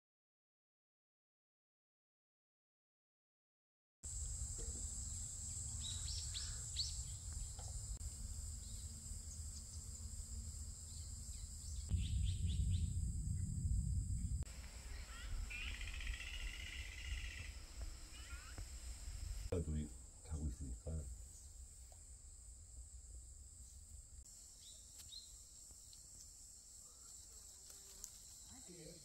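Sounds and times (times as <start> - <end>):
steady high hiss: 4.1 - 29.0
birds chirping: 4.6 - 13.6, 14.2 - 21.6
bird trill: 4.8 - 7.6, 14.8 - 18.6
low rumble: 11.8 - 18.1.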